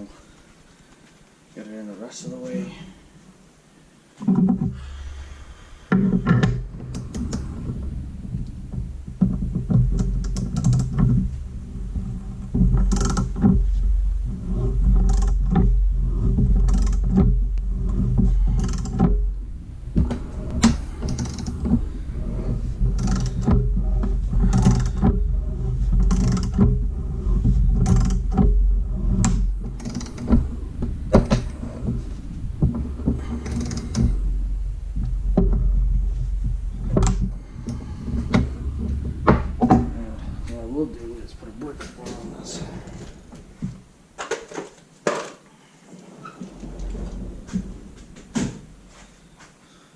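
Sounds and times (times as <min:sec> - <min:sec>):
low steady hum: 0:00.0 - 0:44.9, 0:45.6 - 0:49.6
press metallic clicks and creaks: 0:05.9 - 0:40.6.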